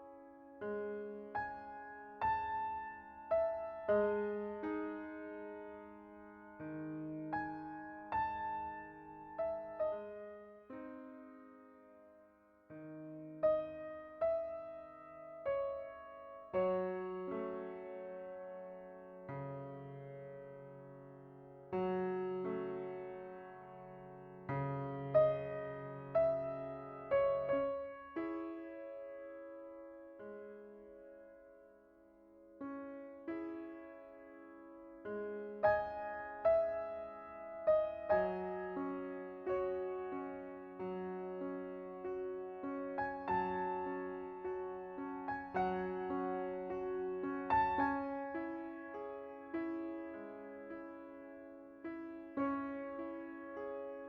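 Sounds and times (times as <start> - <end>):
soft slow piano: 0.0 - 54.0.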